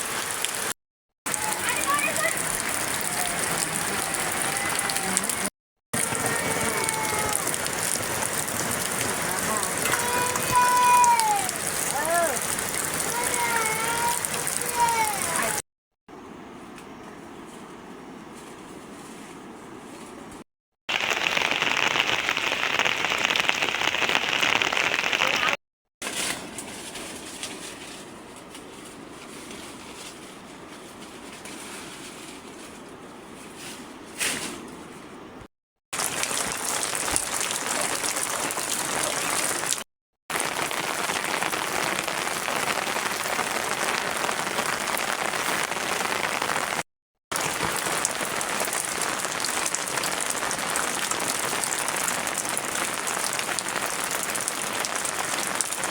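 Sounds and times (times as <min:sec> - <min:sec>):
heavy rain falling: 0:00.0 - 0:00.7, 0:01.3 - 0:15.6, 0:20.9 - 0:25.6, 0:36.0 - 0:55.9.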